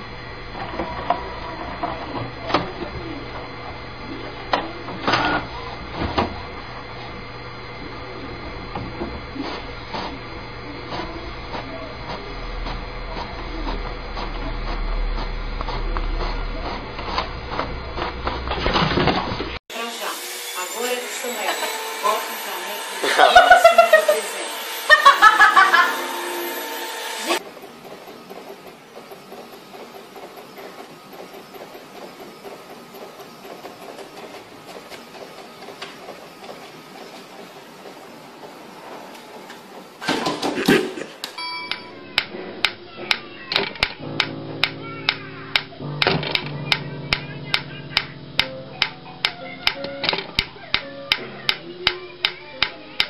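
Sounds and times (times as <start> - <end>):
small machine humming: 0.0 - 53.0
regular mechanical clicking: 42.2 - 53.0.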